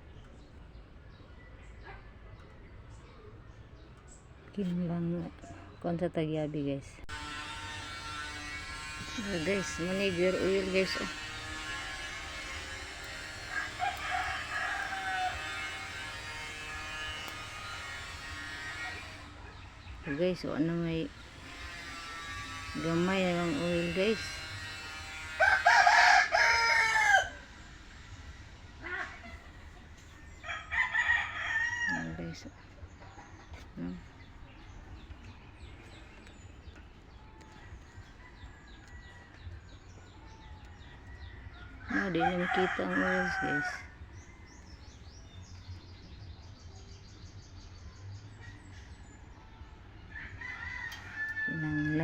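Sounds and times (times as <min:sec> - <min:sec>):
background hum: 0:00.0 - 0:52.0
birds chirping: 0:00.0 - 0:52.0
rooster crowing: 0:11.0 - 0:19.2, 0:24.7 - 0:27.6, 0:30.4 - 0:32.3, 0:40.4 - 0:44.0, 0:50.1 - 0:52.0.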